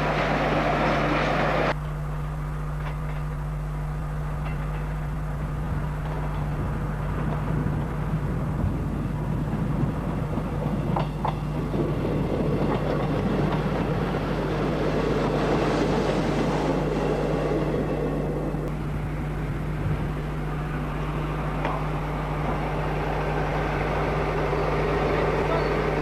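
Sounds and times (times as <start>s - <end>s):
train wheels clattering on rails: 4.2s - 18.7s.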